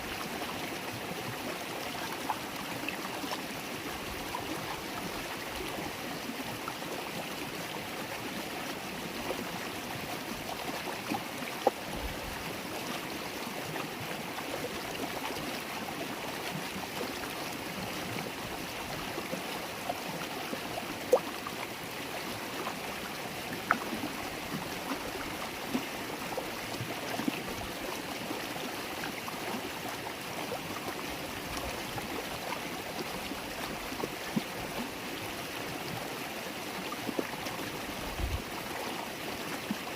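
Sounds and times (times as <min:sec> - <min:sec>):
stream burbling over stones: 0:00.0 - 0:39.9
water plinks and splashes: 0:20.2 - 0:22.1, 0:22.7 - 0:28.3.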